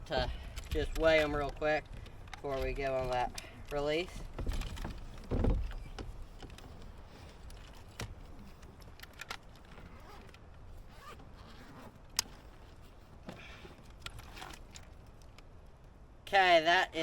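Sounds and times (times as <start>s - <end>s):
fishing gear clicking: 0.0s - 12.9s, 13.7s - 16.0s
light rustling: 0.0s - 15.9s.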